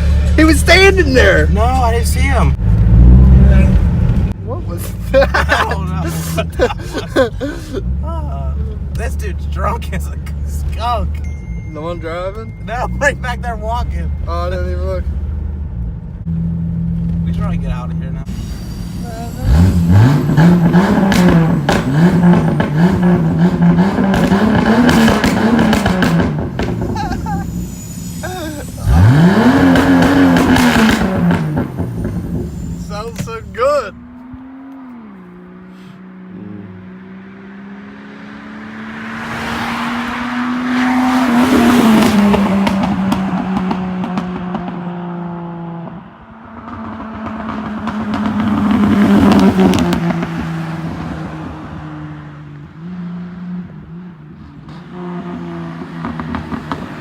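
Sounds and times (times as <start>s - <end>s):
car engine accelerating: 0.0s - 57.0s
exhaust crackling pops: 21.0s - 22.8s, 24.0s - 27.1s, 29.6s - 33.5s, 46.6s - 50.4s
loud rushing sound: 36.7s - 44.3s.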